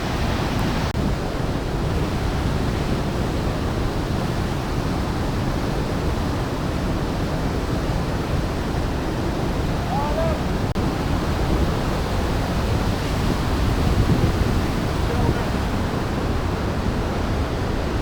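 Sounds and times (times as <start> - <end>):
waterfall rushing: 5.9 - 18.0.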